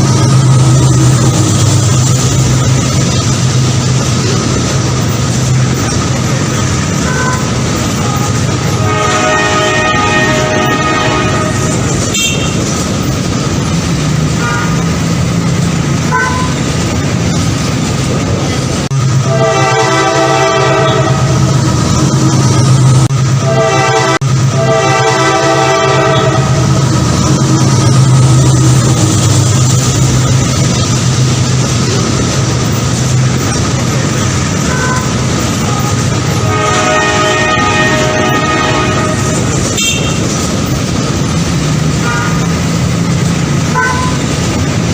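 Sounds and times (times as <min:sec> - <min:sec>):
train rumbling past: 0:00.0 - 0:44.9
train horn chord: 0:07.0 - 0:12.6, 0:19.2 - 0:21.3, 0:23.4 - 0:26.7, 0:34.7 - 0:40.3, 0:43.7 - 0:44.2.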